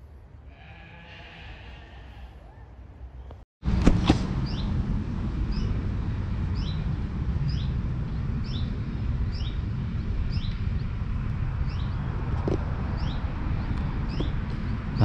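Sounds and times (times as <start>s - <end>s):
steady low rumble: 3.6s - 15.0s.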